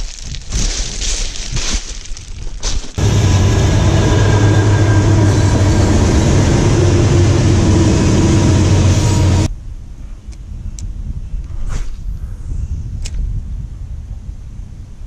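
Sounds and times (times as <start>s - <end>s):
outdoor ambience: 0.0s - 15.0s
diesel locomotive engine drone: 3.0s - 9.5s
rail noise: 3.0s - 9.5s.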